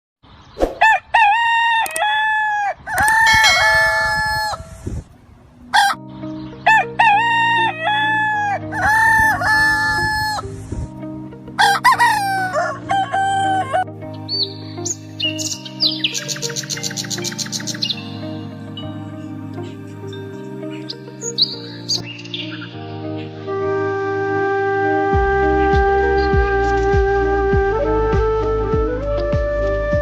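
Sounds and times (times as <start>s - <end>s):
rooster crowing: 0.8s - 4.7s, 7.1s - 10.4s, 11.6s - 13.8s
low background music: 3.0s - 30.0s.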